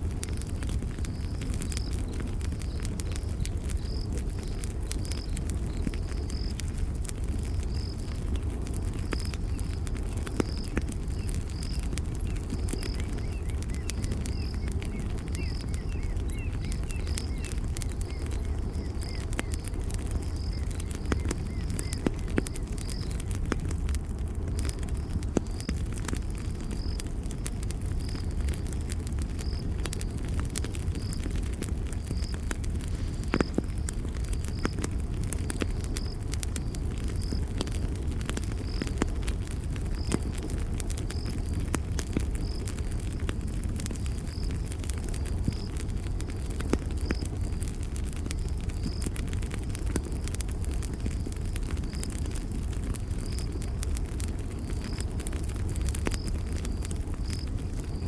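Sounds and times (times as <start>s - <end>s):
campfire crackling and popping: 0.0s - 58.0s
cricket chirping: 24.5s - 58.0s.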